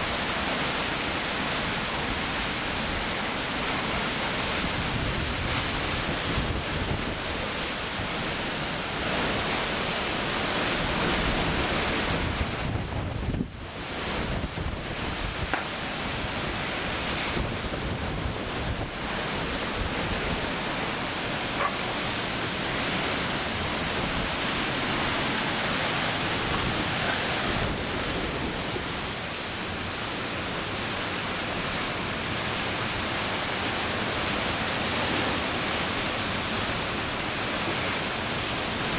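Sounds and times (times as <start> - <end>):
strong wind buffeting microphone: 2.1 - 30.8.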